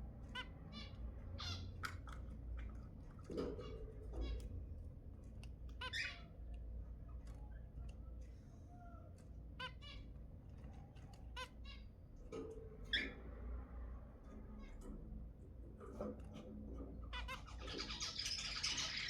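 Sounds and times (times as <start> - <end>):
soft bird chirps: 17.1 - 19.0.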